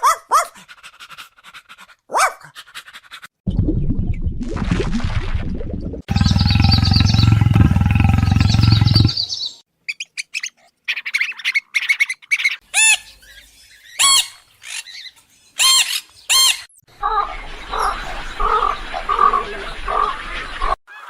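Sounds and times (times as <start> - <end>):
low steady rumble: 6.1 - 9.2
bird chirps: 6.1 - 20.8
rising and falling bird calls: 6.1 - 21.0.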